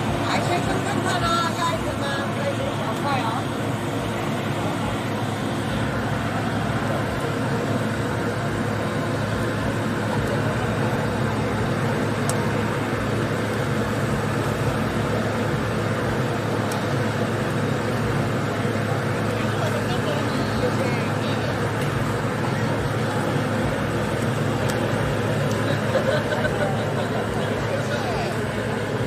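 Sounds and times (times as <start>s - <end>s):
machine humming: 0.0s - 29.0s.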